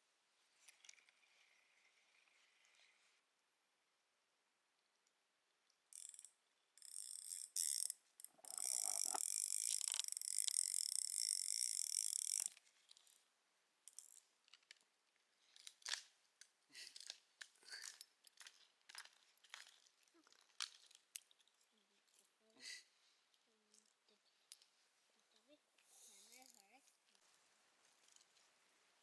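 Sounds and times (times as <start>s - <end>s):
small clicks: 5.0s - 13.2s
mechanical ratcheting whirr: 6.0s - 12.6s
short rasps: 6.9s - 12.5s.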